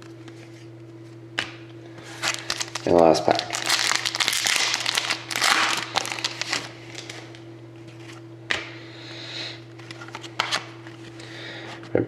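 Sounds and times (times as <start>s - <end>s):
steady low hum: 0.0s - 12.0s
wrapper tearing and crinkling: 2.0s - 7.4s.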